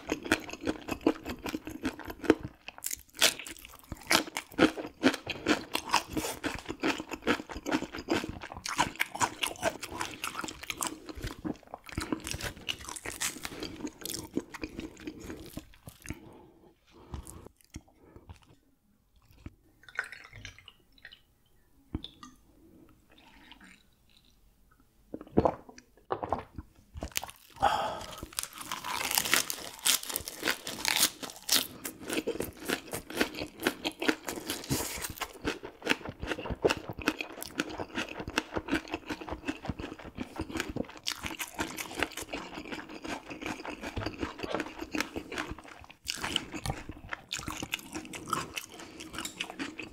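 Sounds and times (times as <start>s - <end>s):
chewing and crunching bones: 0.0s - 16.4s, 27.0s - 49.9s.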